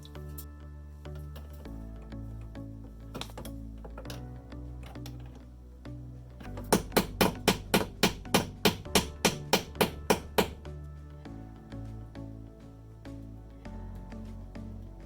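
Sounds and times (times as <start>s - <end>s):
background music: 0.0s - 15.0s
hammer blows: 6.5s - 10.6s.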